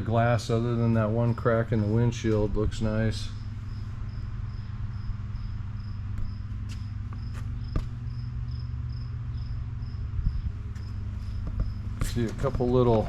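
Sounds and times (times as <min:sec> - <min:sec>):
low steady hum: 0:00.0 - 0:13.0
insect chirping: 0:03.3 - 0:13.0.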